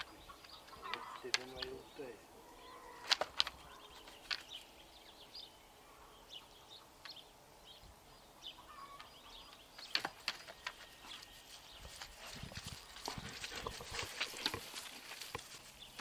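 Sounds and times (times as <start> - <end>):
faint ambient noise: 0.0 - 16.0
sharp clicks: 3.0 - 4.6.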